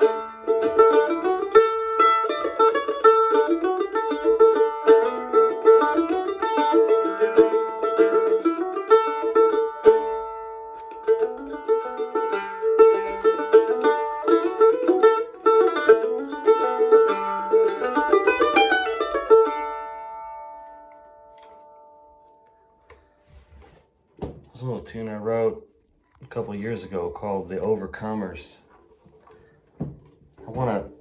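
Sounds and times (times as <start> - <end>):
plucked string melody: 0.0 - 23.5.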